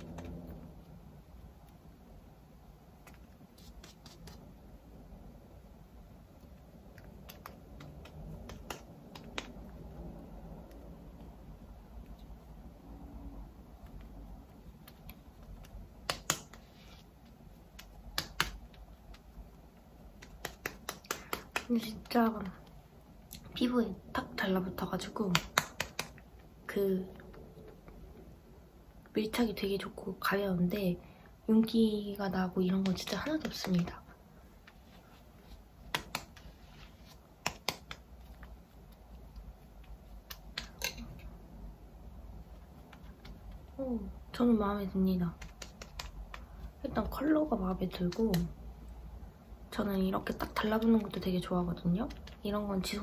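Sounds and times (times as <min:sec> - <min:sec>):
makeup items clicking and tapping: 0:06.9 - 0:09.8, 0:17.7 - 0:19.3, 0:20.2 - 0:22.6, 0:25.1 - 0:26.3, 0:32.6 - 0:34.0, 0:37.4 - 0:38.6, 0:39.3 - 0:41.4, 0:45.2 - 0:48.5.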